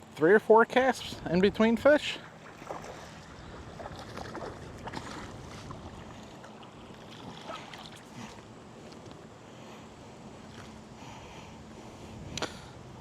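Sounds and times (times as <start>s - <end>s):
river water running: 0.0s - 13.0s
small splashes: 2.2s - 8.5s.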